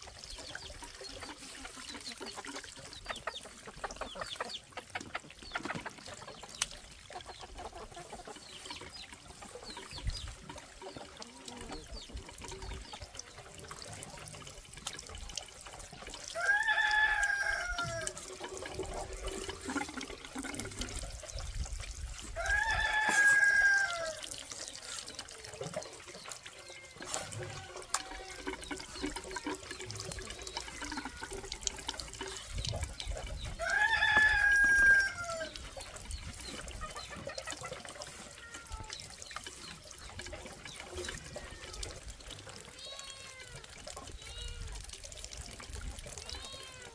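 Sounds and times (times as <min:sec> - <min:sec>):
water trickling: 0:00.0 - 0:46.9
rooster crowing: 0:16.4 - 0:18.2, 0:22.4 - 0:24.2, 0:33.6 - 0:35.5.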